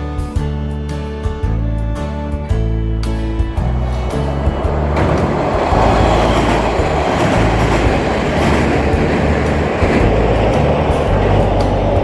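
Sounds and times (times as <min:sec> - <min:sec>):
train wheels rushing on rails: 0:03.5 - 0:12.0.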